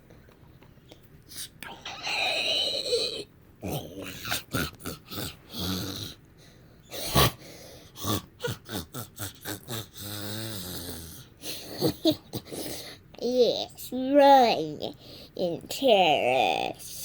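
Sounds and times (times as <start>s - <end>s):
child making vocal battle sounds: 1.6s - 5.3s.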